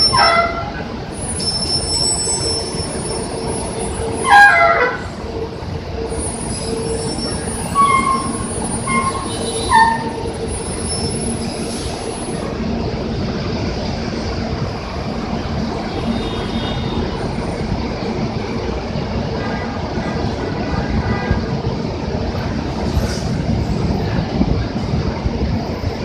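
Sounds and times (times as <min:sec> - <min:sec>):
bus brakes squealing: 0:00.0 - 0:05.2, 0:06.0 - 0:12.6, 0:15.8 - 0:17.6, 0:22.8 - 0:23.9
bus engines: 0:00.0 - 0:26.0
traffic: 0:00.0 - 0:26.0.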